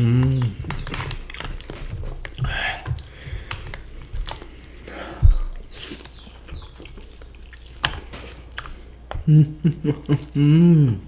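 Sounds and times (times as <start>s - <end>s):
wet chewing mouth clicks: 0.0s - 11.0s
dull low thump: 5.2s - 5.6s.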